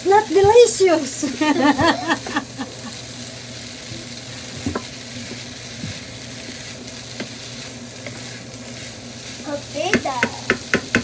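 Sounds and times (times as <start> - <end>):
food sizzling in a frying pan: 0.0 - 11.0
spatula knocking against pan: 9.9 - 11.0.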